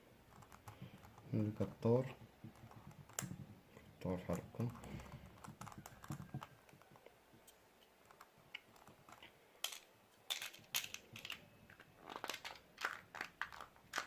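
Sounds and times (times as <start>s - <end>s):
small metal tools clicking: 9.1s - 11.4s.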